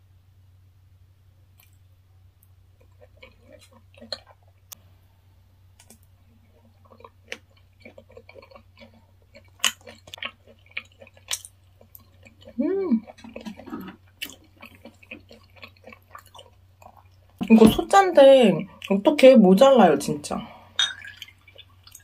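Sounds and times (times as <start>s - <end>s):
person chewing with wet smacks: 2.4s - 4.8s, 5.8s - 17.5s, 21.0s - 22.0s.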